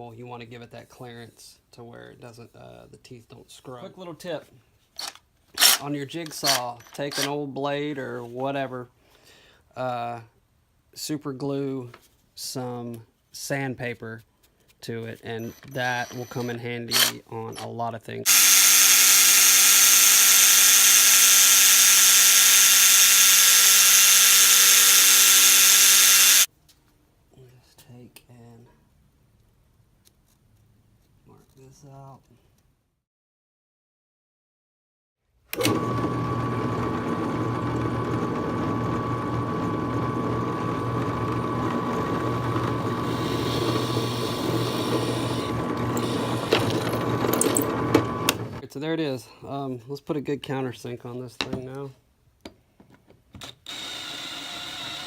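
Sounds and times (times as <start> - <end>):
power tool motor whining: 5.0 - 7.3, 15.4 - 17.6, 18.3 - 26.5, 35.6 - 48.6, 53.4 - 55.0
electric jigsaw sanding: 15.8 - 17.2, 18.3 - 26.5, 35.6 - 48.6, 53.4 - 55.0.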